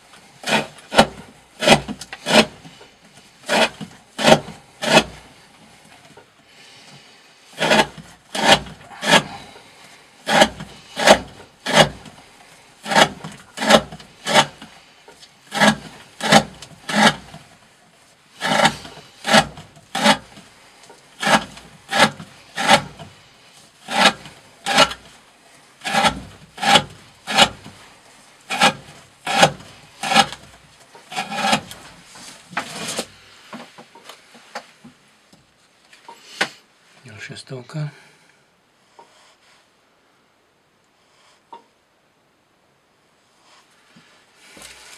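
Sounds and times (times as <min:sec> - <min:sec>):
knife slicing through rope: 0:00.4 - 0:02.8, 0:03.4 - 0:05.3, 0:07.6 - 0:09.5, 0:10.2 - 0:12.2, 0:12.8 - 0:14.8, 0:15.5 - 0:17.5, 0:18.4 - 0:20.4, 0:21.2 - 0:23.2, 0:23.9 - 0:25.2, 0:25.8 - 0:27.9, 0:28.5 - 0:33.1.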